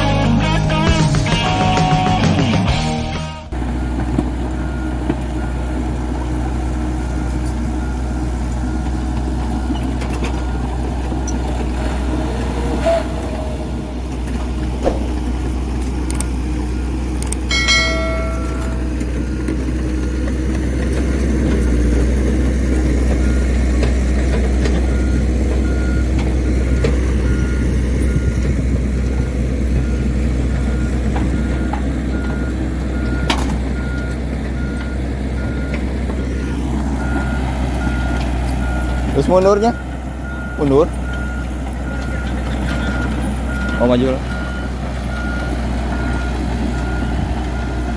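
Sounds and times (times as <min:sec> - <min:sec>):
short higher tone: 0:00.0 - 0:03.6, 0:17.5 - 0:19.0
diesel truck engine rumbling: 0:00.0 - 0:47.9
reversing alarm beeping: 0:00.6 - 0:11.6, 0:14.9 - 0:20.2, 0:23.1 - 0:47.9.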